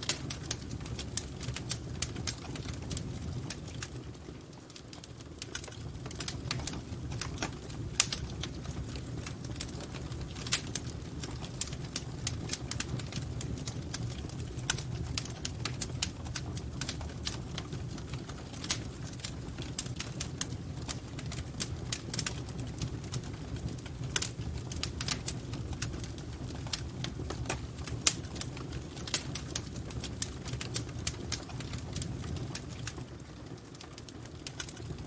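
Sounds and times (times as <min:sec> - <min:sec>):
wood fire crackling and popping: 0:00.0 - 0:35.0.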